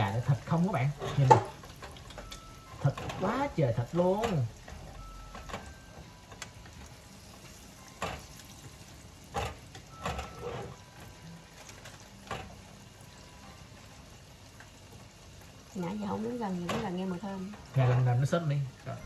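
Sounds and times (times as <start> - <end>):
chicken sizzling in oil: 0.0 - 19.0
metal tongs clinking on pan: 1.0 - 4.7.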